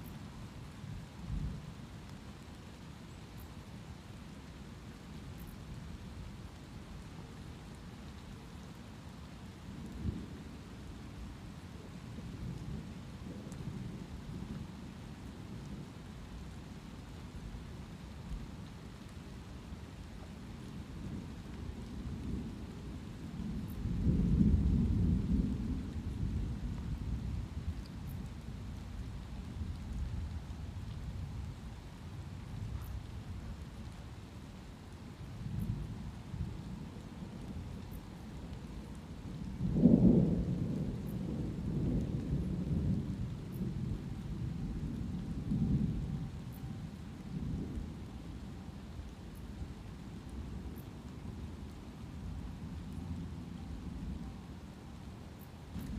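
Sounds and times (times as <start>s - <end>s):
light rain: 0.0s - 55.9s
low roll of thunder: 20.6s - 34.4s, 35.0s - 55.9s.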